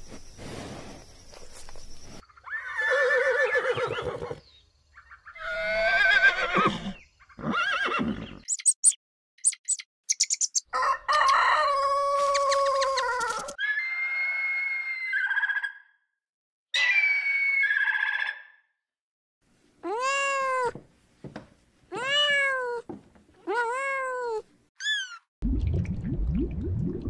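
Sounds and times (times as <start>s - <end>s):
rooster crowing: 10.7s - 13.5s
animal calls: 24.8s - 25.3s.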